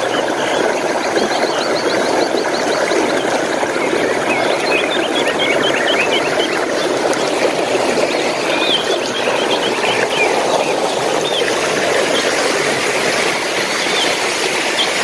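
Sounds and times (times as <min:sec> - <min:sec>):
running water rushing: 0:00.0 - 0:15.0
songbirds chirping: 0:01.2 - 0:07.2, 0:07.8 - 0:12.3.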